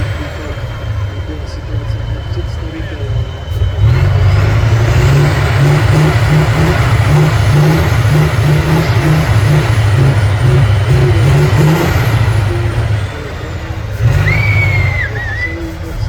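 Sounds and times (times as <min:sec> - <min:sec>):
faint high whine: 0:00.0 - 0:05.5
diesel engine under load: 0:00.0 - 0:16.0.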